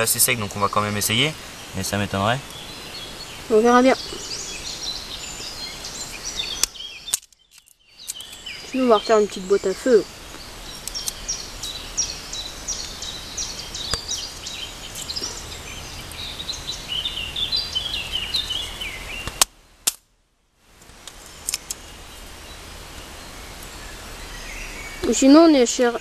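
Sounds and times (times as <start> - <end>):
birds chirping: 0.0 - 19.4, 20.9 - 26.0
outdoor hiss: 0.0 - 26.0
sharp clicks: 6.6 - 8.4, 10.3 - 11.8, 21.0 - 21.8.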